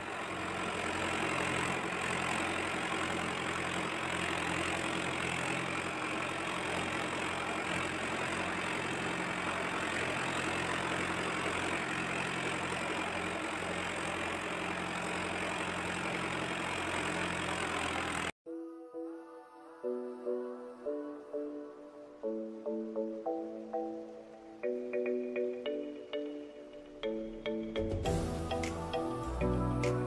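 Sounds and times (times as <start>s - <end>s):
tractor diesel engine running: 0.0s - 18.4s.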